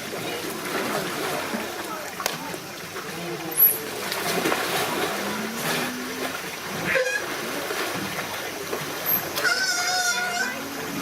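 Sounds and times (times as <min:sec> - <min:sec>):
background hubbub: 0:00.0 - 0:07.0
water splashing in a pool: 0:00.0 - 0:11.0.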